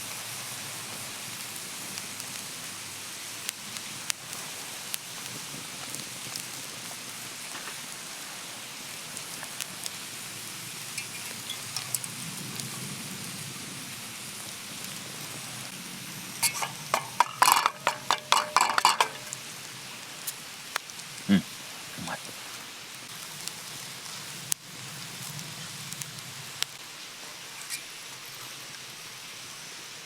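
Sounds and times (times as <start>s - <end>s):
food sizzling on a griddle: 0.0s - 30.0s
utensil scraping metal griddle: 16.4s - 19.5s.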